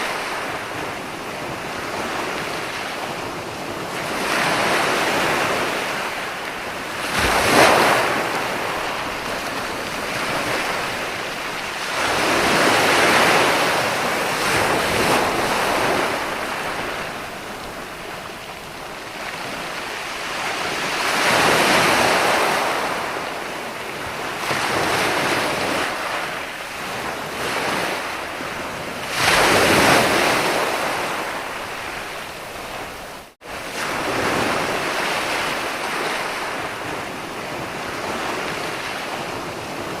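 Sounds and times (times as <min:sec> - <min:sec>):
ocean waves breaking: 0:00.0 - 0:40.0.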